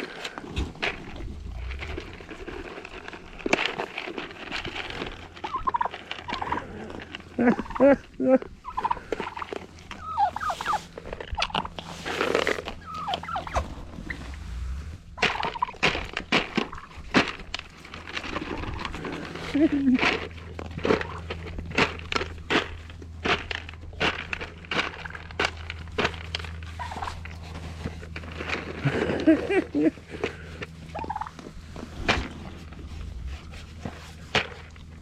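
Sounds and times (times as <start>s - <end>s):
animals breathing: 0.0s - 7.4s, 8.6s - 15.6s, 17.8s - 23.0s, 26.8s - 35.0s
turkeys gobbling: 5.4s - 17.0s, 21.0s - 21.2s, 26.7s - 27.5s, 28.8s - 31.5s.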